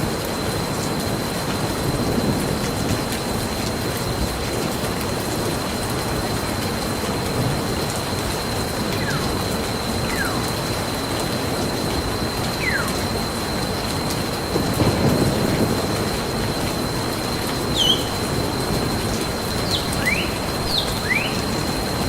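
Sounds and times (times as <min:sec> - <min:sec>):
rushing water: 0:00.0 - 0:22.0
short falling whistles: 0:17.7 - 0:18.2.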